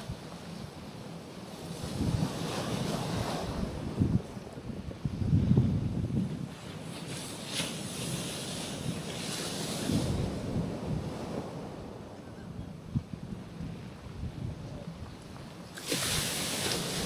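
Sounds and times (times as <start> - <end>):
waves washing onto rocky shore: 0.0 - 4.6, 6.4 - 12.5, 15.4 - 17.0
wind buffeting microphone: 1.6 - 17.0.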